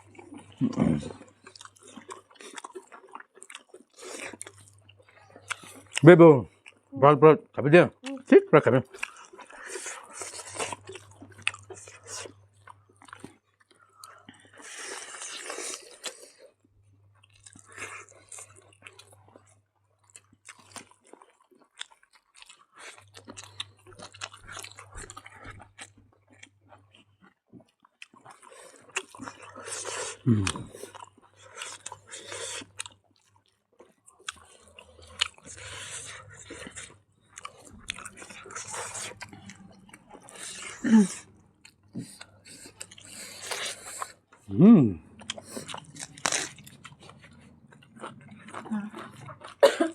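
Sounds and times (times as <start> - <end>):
chewing and biting food: 0.0 - 6.9, 8.0 - 49.6.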